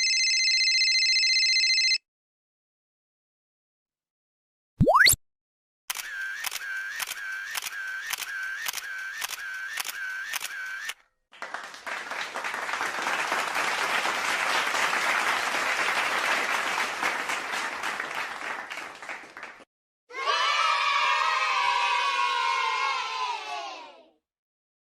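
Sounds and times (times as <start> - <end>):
camera shutter clicking: 5.9 - 11.0
applause: 11.3 - 19.7.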